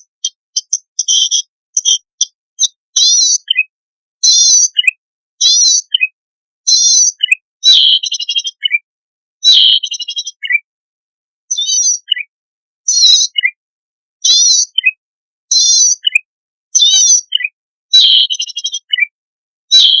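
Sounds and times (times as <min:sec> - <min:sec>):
high buzzy bird phrases: 0:00.0 - 0:06.0, 0:06.7 - 0:08.8, 0:09.4 - 0:10.6, 0:11.5 - 0:12.2, 0:16.8 - 0:17.4, 0:18.0 - 0:19.0, 0:19.7 - 0:20.0.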